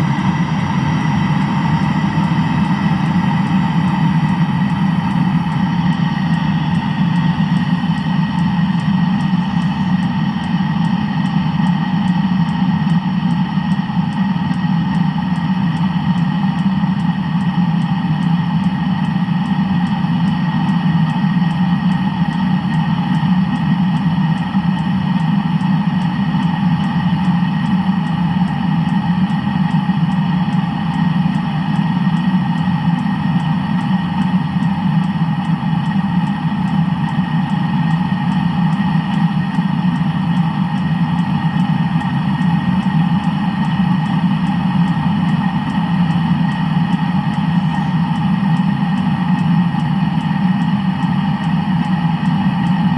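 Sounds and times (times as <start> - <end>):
vehicle engine running: 0.0 - 15.4
faint regular ticking: 0.0 - 52.9.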